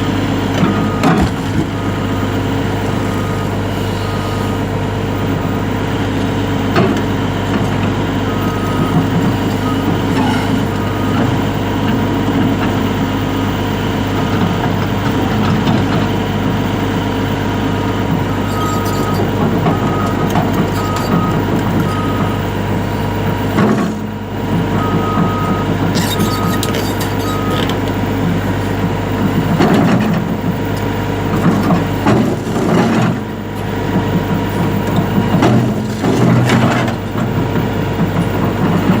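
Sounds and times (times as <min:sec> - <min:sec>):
excavator diesel engine running: 0:00.0 - 0:39.0
warning alarm beeps: 0:08.3 - 0:11.4, 0:24.8 - 0:27.7.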